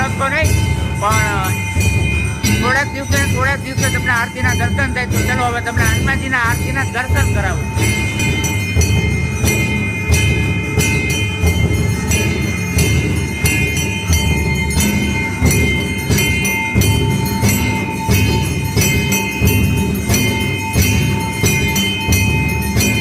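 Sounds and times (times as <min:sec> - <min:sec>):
bells ringing: 0:00.0 - 0:23.0
drum beating: 0:00.0 - 0:23.0.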